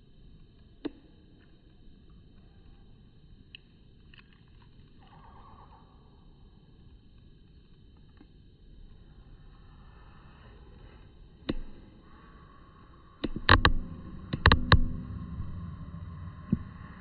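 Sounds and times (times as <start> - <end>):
sharp knocks and bumps: 13.3 - 16.9.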